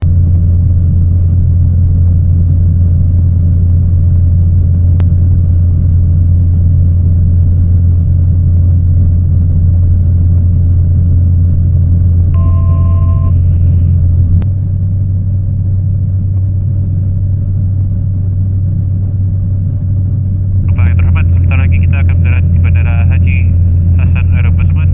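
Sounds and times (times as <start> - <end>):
turboprop engine drone: 0.0 - 24.9
two-note electronic beep: 12.4 - 14.0.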